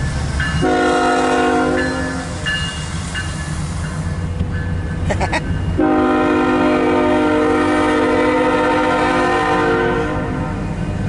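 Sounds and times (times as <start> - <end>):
diesel locomotive engine rumble: 0.0 - 11.0
air horn chord: 0.6 - 2.2, 5.8 - 10.6.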